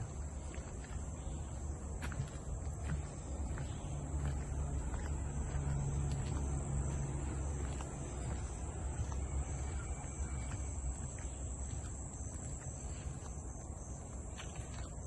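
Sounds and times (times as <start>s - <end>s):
insect chorus: 0.0s - 15.0s.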